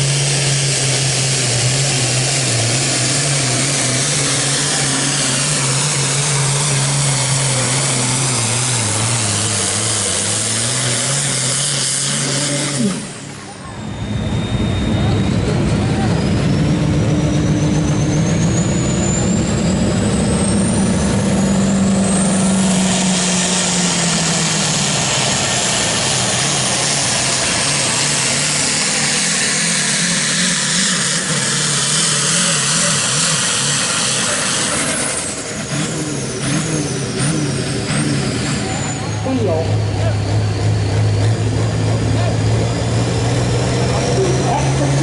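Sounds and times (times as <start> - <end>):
diesel tractor engine at full throttle: 0.0 - 45.0
high turbo whistle: 11.0 - 35.6.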